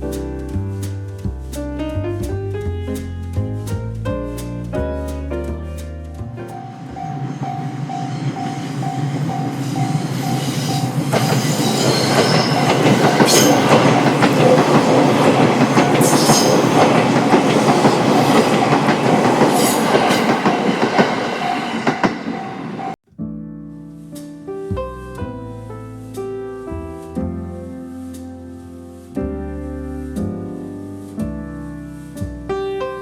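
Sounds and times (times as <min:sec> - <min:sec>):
train rumble: 0:06.2 - 0:23.0
high wheel squeals: 0:06.6 - 0:13.7.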